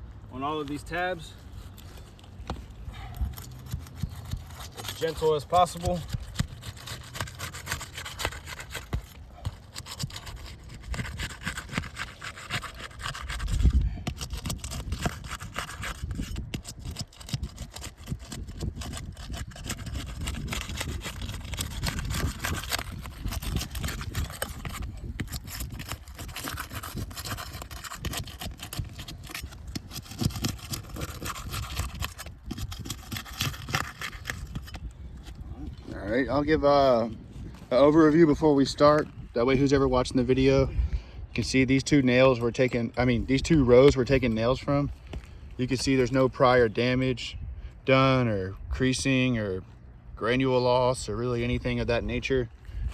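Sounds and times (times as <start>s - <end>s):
metal tool scraping shingles: 3.0s - 35.5s.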